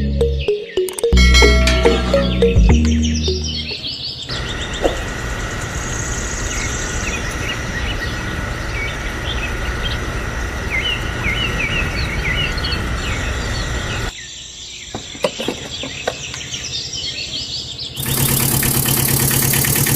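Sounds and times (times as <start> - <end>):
small birds chirping: 2.4 - 19.9
loud engine-like noise: 4.3 - 14.1, 18.0 - 19.9
outdoor background hiss: 13.5 - 18.0.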